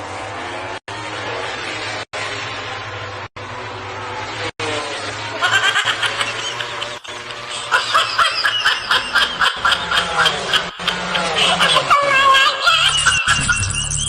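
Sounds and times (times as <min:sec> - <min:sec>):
steady low hum: 0:00.0 - 0:13.8
high-pitched laughter bursts: 0:05.3 - 0:14.0.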